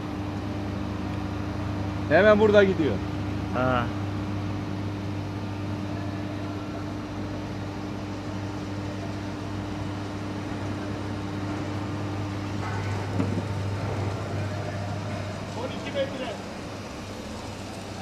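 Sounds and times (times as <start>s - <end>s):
welding machinery hum: 0.0s - 18.0s.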